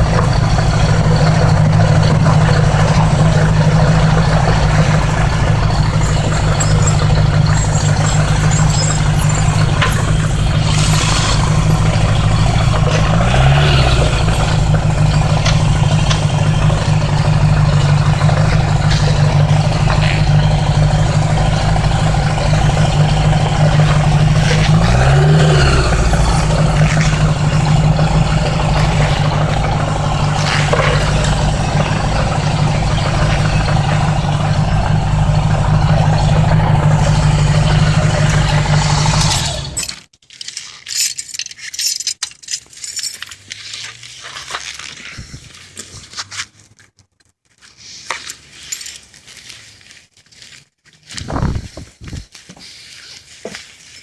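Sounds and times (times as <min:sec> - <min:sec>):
motorcycle engine running: 0:00.0 - 0:39.8
wind rushing past microphone: 0:51.2 - 0:52.3.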